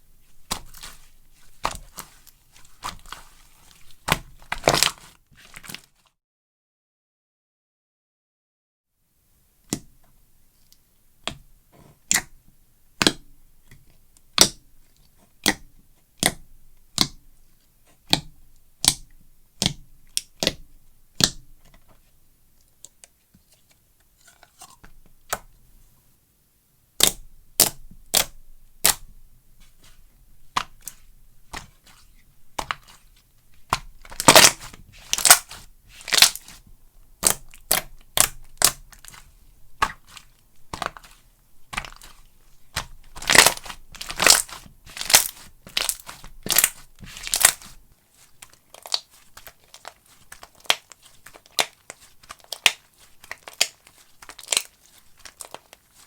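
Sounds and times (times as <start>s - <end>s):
slime popping and crackling: 0.4s - 5.9s, 27.0s - 29.1s, 33.6s - 36.6s, 37.2s - 47.8s, 48.4s - 56.0s.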